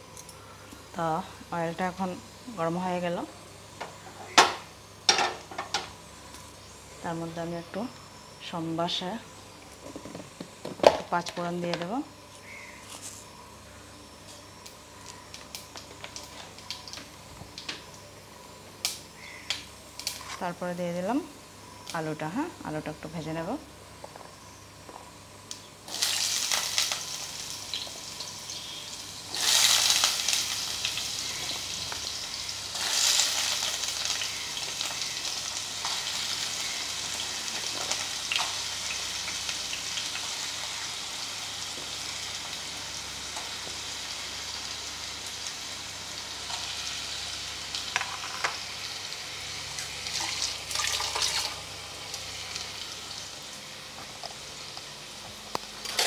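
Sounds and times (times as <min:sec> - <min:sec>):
oil crackles: 0:14.6 - 0:18.0, 0:25.5 - 0:48.8, 0:49.7 - 0:56.0
oil sizzling in a pan: 0:25.4 - 0:56.0.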